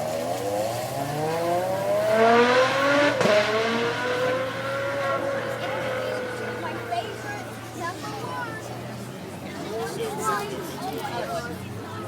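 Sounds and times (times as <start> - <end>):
supercar engine accelerating: 0.0 - 7.2.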